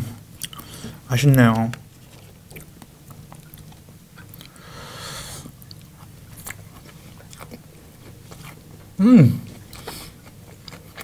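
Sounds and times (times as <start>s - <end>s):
person chewing food: 0.4s - 4.7s, 5.4s - 11.0s
soft breath hiss: 4.0s - 7.3s.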